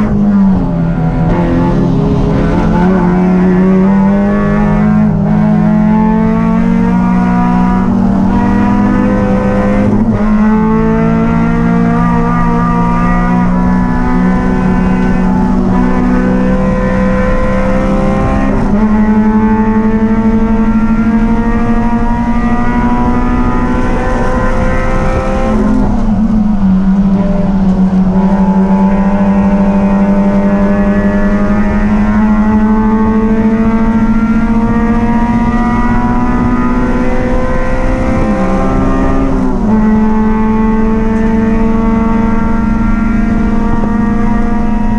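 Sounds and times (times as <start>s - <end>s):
racing engine revving: 0.0s - 44.9s.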